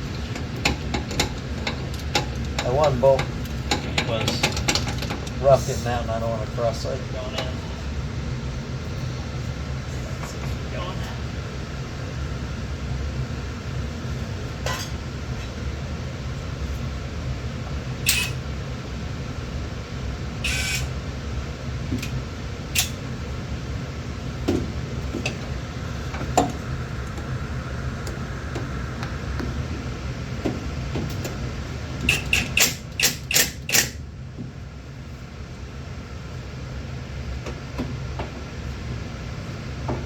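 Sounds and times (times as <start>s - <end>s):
steady low hum: 0.0s - 40.0s
sharp ratchet clicks: 20.5s - 20.9s, 32.1s - 34.0s
metallic clicks of hand tools: 32.1s - 34.0s.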